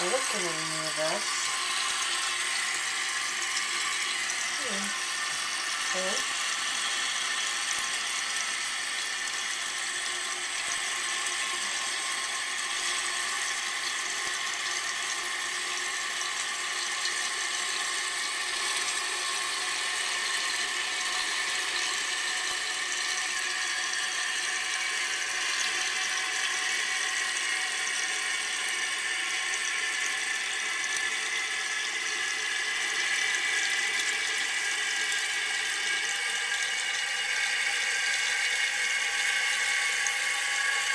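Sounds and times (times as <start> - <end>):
water filling toilet tank: 0.0 - 40.9.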